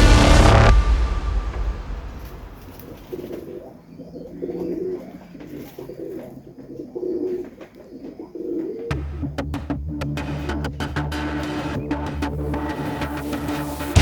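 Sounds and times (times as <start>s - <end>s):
pigeons cooing: 3.1s - 9.0s.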